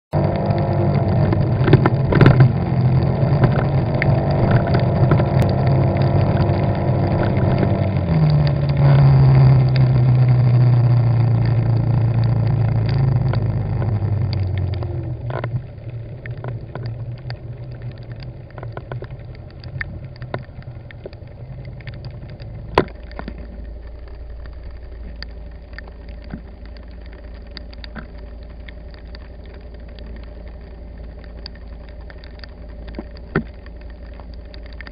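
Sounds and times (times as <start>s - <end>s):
road noise: 0.1s - 34.9s
car engine from inside: 0.2s - 26.6s
small ticks: 0.2s - 34.9s.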